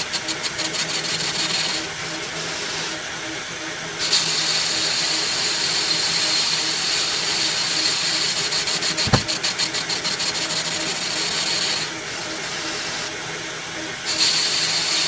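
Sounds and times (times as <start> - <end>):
sharp knock: 9.1 - 9.4.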